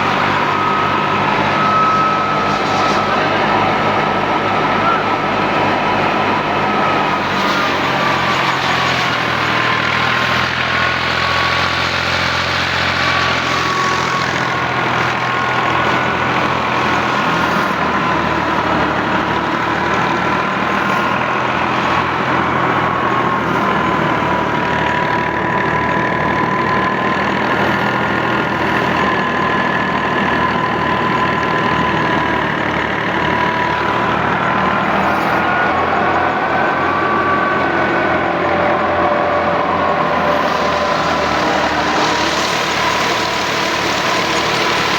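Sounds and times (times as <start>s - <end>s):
threshing machine whine: 0.0s - 44.9s
tractor engine running: 0.0s - 44.9s.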